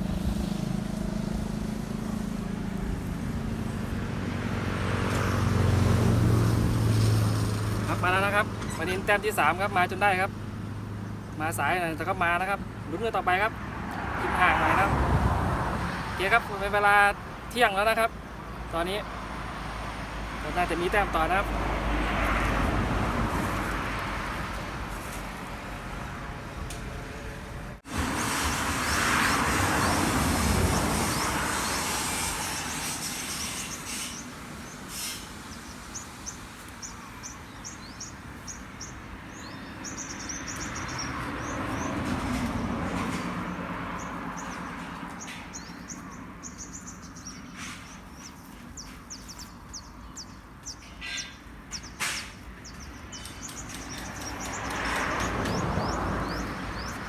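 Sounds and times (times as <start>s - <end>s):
road vehicles passing: 0.0s - 57.0s
small birds chirping: 30.8s - 57.0s.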